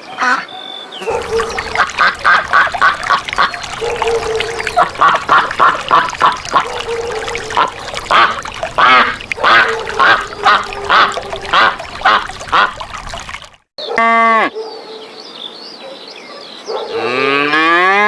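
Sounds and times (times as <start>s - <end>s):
ducks quacking: 0.2s - 13.3s.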